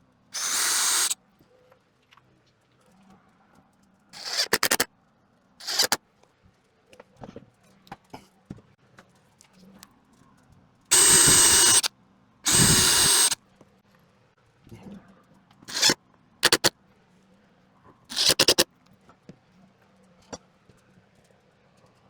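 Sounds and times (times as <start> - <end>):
power tool whining: 0.4 - 1.2, 5.6 - 6.0, 10.9 - 11.9, 12.5 - 13.4, 15.7 - 16.7, 18.1 - 18.6.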